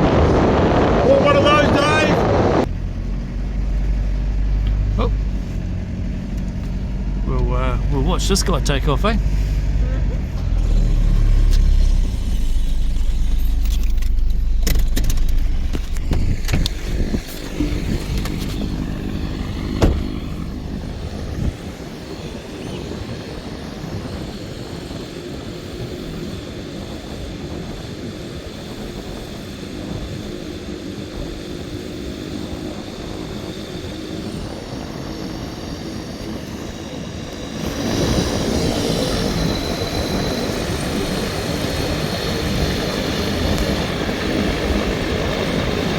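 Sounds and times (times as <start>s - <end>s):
propeller engine droning: 0.0s - 45.9s.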